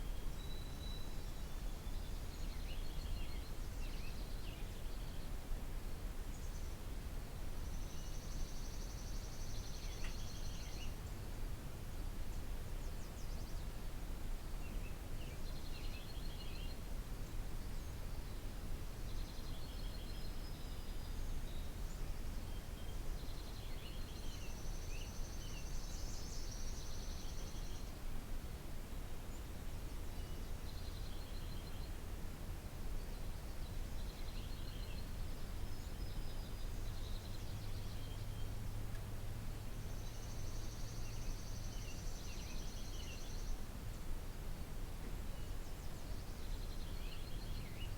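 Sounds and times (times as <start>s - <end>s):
songbirds singing: 39.7s - 43.7s, 45.3s - 47.9s.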